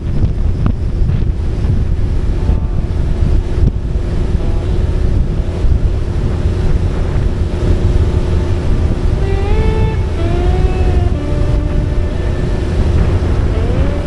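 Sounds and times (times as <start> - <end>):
motorcycle engine rumble: 0.0 - 14.0
wind buffeting microphone: 0.0 - 14.0
song: 8.9 - 14.0.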